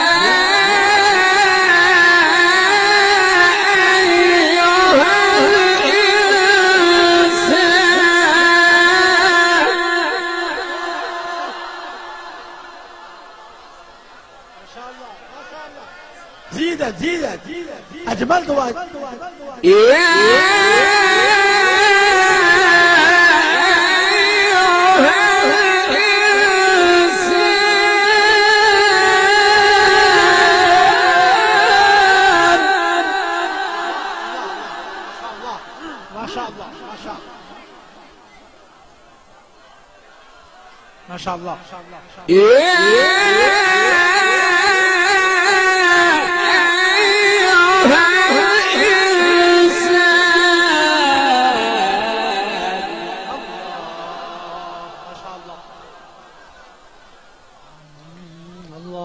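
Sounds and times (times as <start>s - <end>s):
person reciting in long melismatic note: 0.0s - 13.4s, 19.6s - 37.7s, 42.3s - 56.0s, 57.8s - 59.0s.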